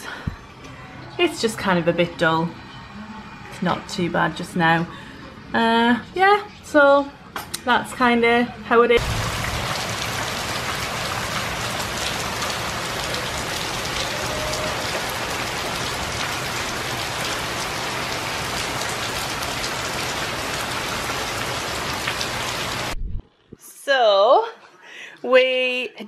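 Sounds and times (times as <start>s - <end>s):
heavy rain pouring: 9.0s - 23.0s.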